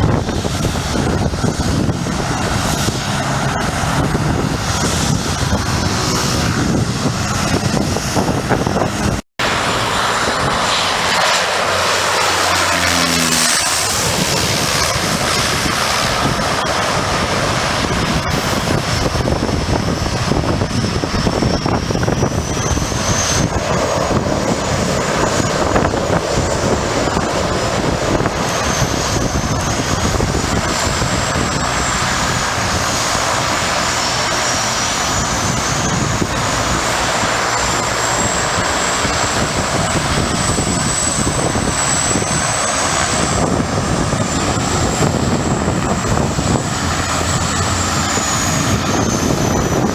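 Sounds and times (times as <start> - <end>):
propeller aircraft engine running: 0.0 - 49.9.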